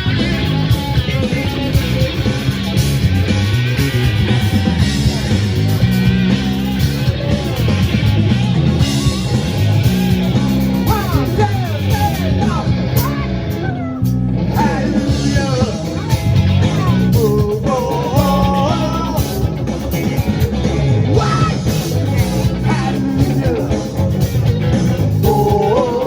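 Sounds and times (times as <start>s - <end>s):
bass line: 0.0s - 26.0s
bending lead guitar: 0.0s - 26.0s
drums: 0.0s - 26.0s.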